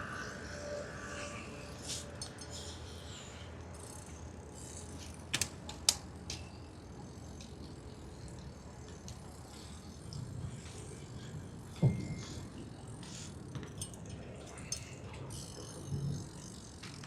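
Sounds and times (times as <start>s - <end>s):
bicycle mechanical clicks and rattles: 2.2s - 11.3s, 13.0s - 17.0s
bicycle rolling rumble: 15.3s - 17.0s.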